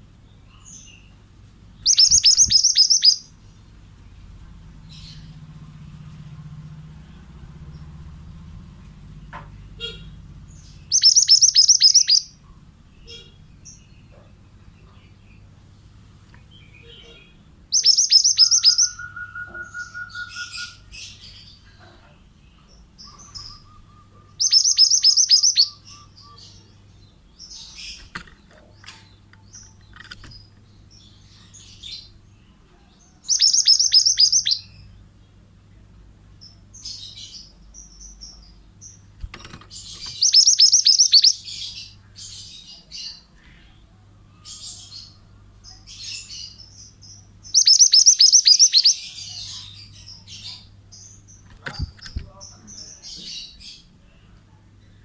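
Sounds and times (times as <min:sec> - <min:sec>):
soft bird chirps: 0:00.0 - 0:06.4, 0:08.8 - 0:35.8, 0:36.4 - 0:55.0
bird singing rapid high notes: 0:01.8 - 0:03.4, 0:09.7 - 0:12.4, 0:16.6 - 0:21.3, 0:23.0 - 0:26.8, 0:33.3 - 0:34.8, 0:39.9 - 0:41.9, 0:46.9 - 0:49.2.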